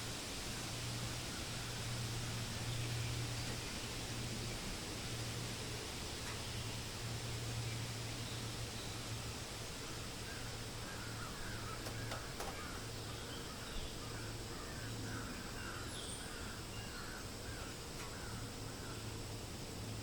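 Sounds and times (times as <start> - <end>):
steady hiss: 0.0 - 20.0
bird calling: 9.8 - 19.1.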